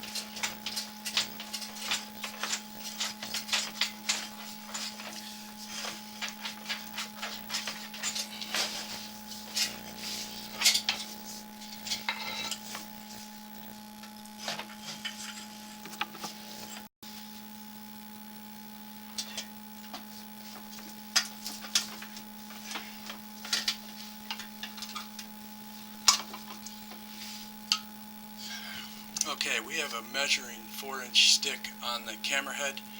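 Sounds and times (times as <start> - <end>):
electrical hum: 0.0 - 32.9.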